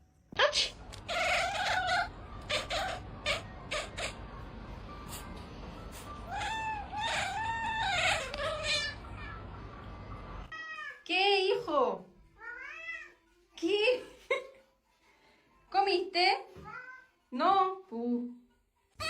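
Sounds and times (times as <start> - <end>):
cat meowing: 1.0 - 4.2, 6.3 - 9.6.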